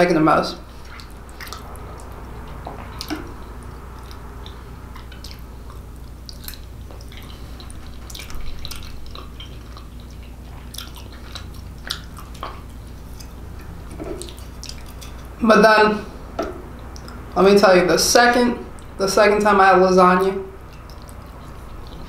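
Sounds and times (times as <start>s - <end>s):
low hum: 0.0s - 22.0s
wet chewing and mouth smacks: 0.7s - 15.4s, 16.2s - 17.4s, 18.7s - 19.0s, 20.6s - 22.0s.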